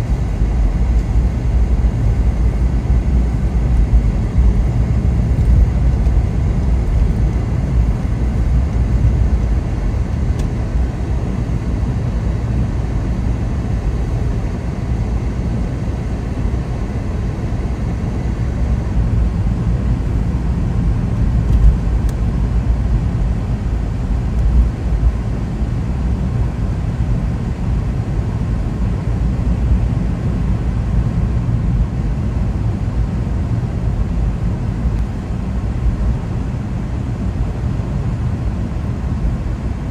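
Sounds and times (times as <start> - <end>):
car engine and tyres rumbling: 0.0 - 26.1.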